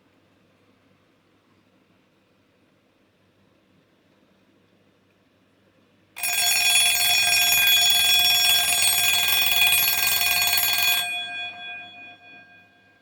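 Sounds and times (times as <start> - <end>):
alarm clock bell ringing: 6.2 - 13.0.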